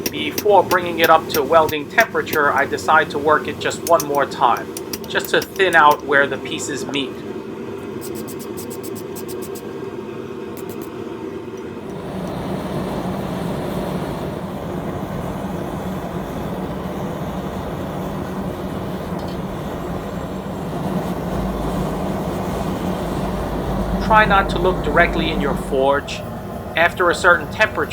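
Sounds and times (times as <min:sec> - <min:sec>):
forge roaring: 0:12.0 - 0:27.9
low hum: 0:14.3 - 0:27.9.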